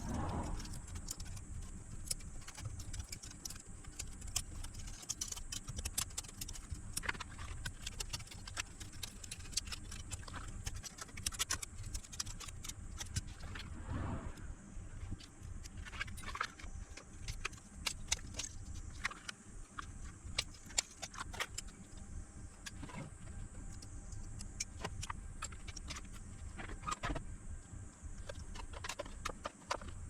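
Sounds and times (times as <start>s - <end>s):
steady low hum: 0.0s - 30.0s
small metallic clicks and taps: 0.4s - 13.6s.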